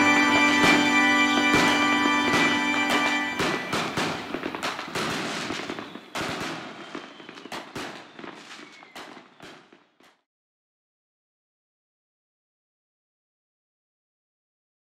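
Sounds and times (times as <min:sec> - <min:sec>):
firework whistle: 0:00.0 - 0:09.8
fireworks crackling and banging: 0:00.0 - 0:10.2.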